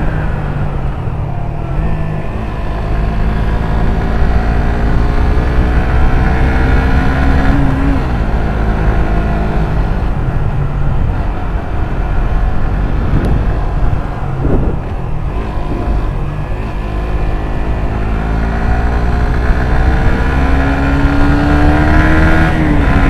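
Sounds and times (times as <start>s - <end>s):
motorcycle engine running: 0.0s - 23.0s
wind rumble on microphone: 0.0s - 23.0s.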